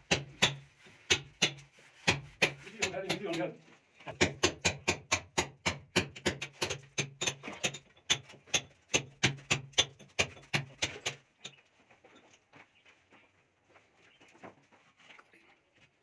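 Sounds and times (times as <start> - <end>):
rapid sharp knocking: 0.0 - 3.5, 4.1 - 11.2.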